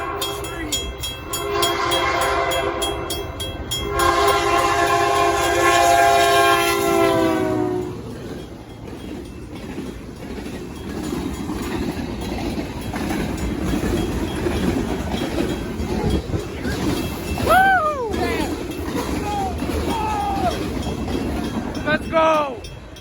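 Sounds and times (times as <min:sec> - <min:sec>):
locomotive horn chord: 0:00.0 - 0:08.1
train wheels clattering on rails: 0:00.0 - 0:23.0
person shouting: 0:17.4 - 0:20.7.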